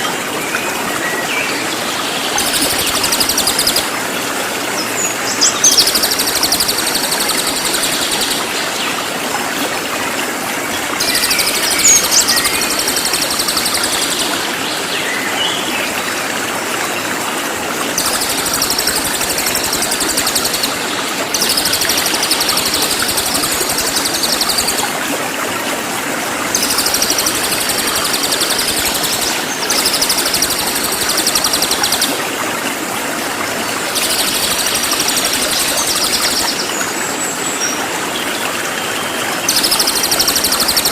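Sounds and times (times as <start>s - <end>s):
songbird trilling: 5.3s - 8.3s.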